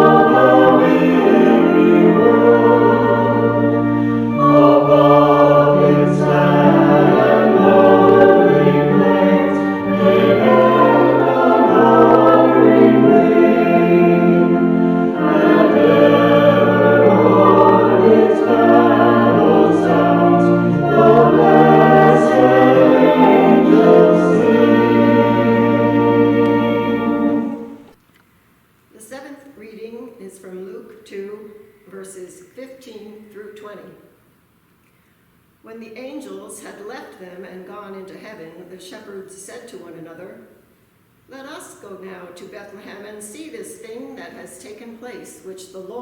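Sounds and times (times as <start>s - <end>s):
choir singing a hymn: 0.0s - 28.0s.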